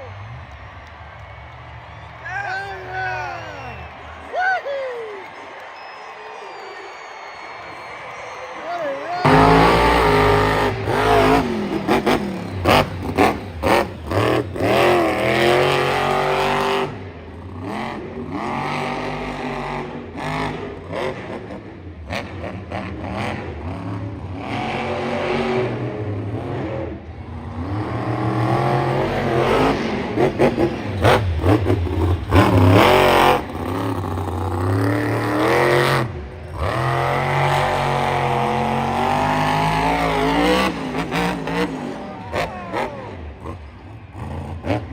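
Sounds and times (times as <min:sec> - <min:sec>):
truck engine revving: 0:09.1 - 0:44.9.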